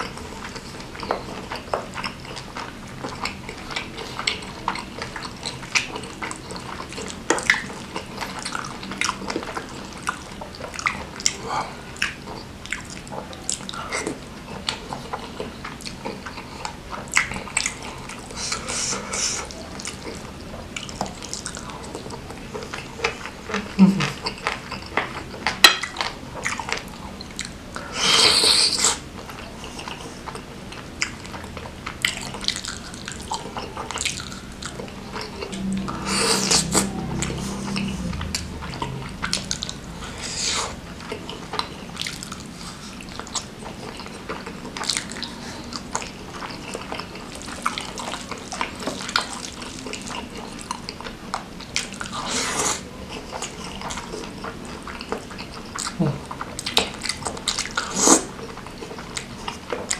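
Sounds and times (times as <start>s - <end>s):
wet chewing and mouth smacking: 0.0s - 59.9s.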